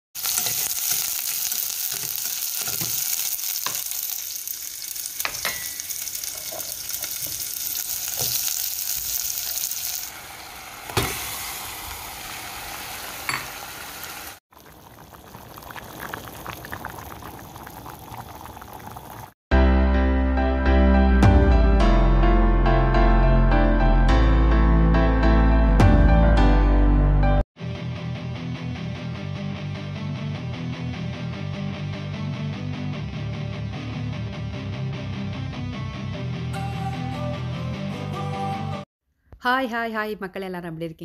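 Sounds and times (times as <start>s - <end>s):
onions sizzling in hot oil: 0.2s - 17.7s
metal spoon clinking against pot: 5.2s - 6.8s.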